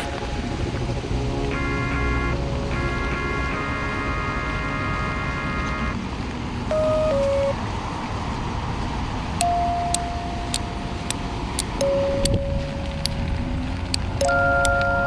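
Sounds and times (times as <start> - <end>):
passing cars: 0.0 - 15.0
long held tones: 6.7 - 7.6, 9.4 - 15.0
sharp ticks: 9.3 - 15.0.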